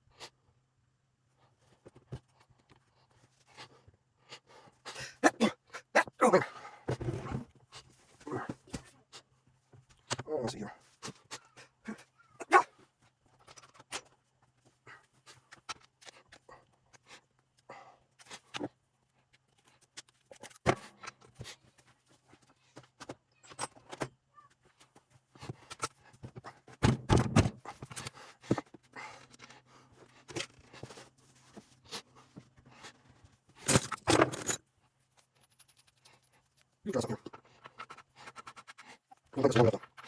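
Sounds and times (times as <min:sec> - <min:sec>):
metal parts clinking: 0:33.6 - 0:34.6.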